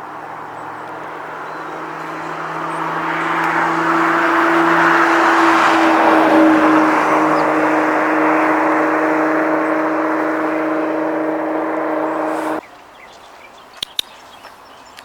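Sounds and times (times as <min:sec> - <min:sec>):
motor humming: 0:03.4 - 0:12.6
faint sharp clicks: 0:13.8 - 0:15.0.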